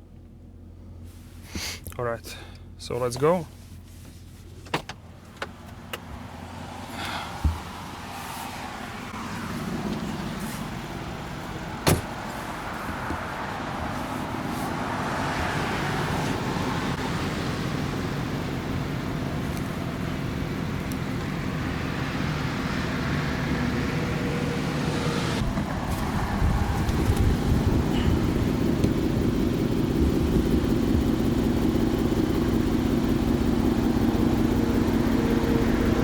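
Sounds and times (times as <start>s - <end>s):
car engine idling: 0.0s - 36.0s
sharp thump: 11.8s - 12.2s.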